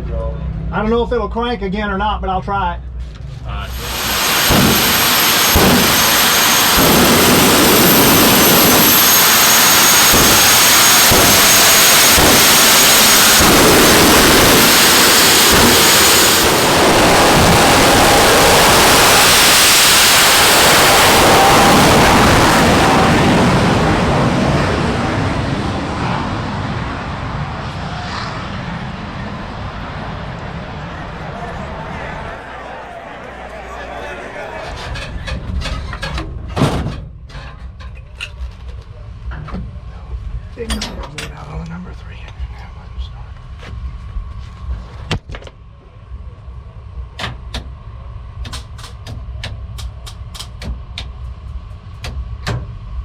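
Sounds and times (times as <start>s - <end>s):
jet engine roaring with high whine: 3.6s - 37.0s
low thumps: 3.7s - 18.0s.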